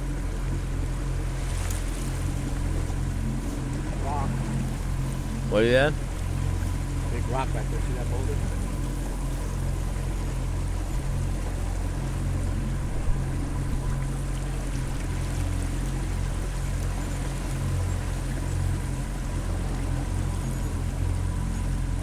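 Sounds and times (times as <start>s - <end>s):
boat motor humming: 0.0s - 22.0s
water rushing along hull: 0.0s - 22.0s.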